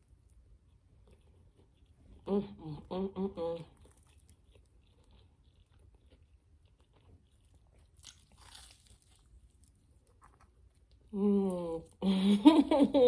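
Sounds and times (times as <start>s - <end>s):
chewing with wet clicks: 0.0s - 2.3s, 3.6s - 11.1s
soft crunch: 0.0s - 2.3s, 3.6s - 11.2s.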